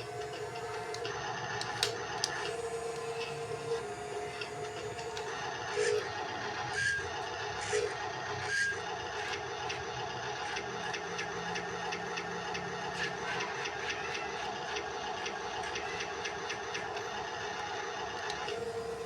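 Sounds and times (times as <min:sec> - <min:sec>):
small electric motors whirring: 0:00.0 - 0:19.0.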